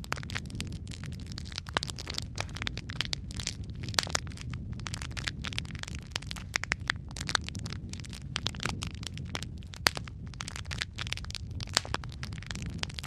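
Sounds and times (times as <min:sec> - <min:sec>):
logs crackling and popping: 0:00.0 - 0:13.0
low rumble of flames: 0:00.0 - 0:13.0.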